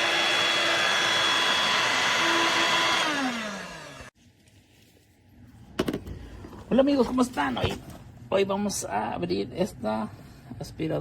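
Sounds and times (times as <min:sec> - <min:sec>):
stick vacuum running with whine: 0:00.0 - 0:04.1.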